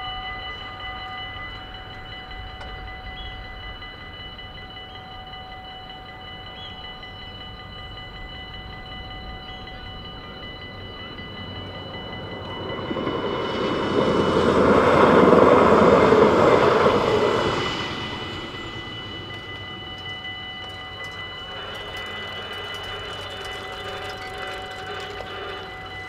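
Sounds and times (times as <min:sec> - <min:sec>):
crossing warning bells ringing: 0:00.0 - 0:26.0
train passing: 0:00.0 - 0:26.0.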